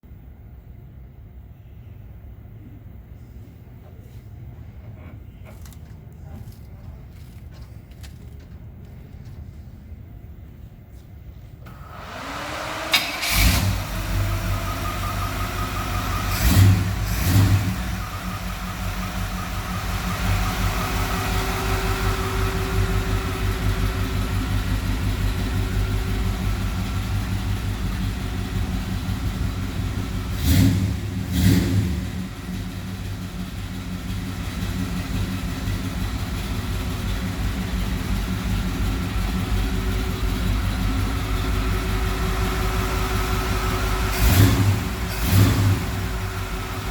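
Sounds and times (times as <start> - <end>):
car engine idling and revving: 11.7 - 46.9.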